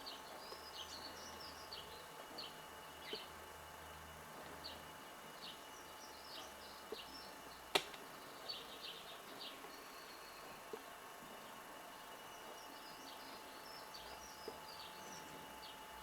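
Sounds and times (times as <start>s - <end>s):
small birds chirping: 0.0s - 16.0s
sharp click: 7.7s - 8.0s.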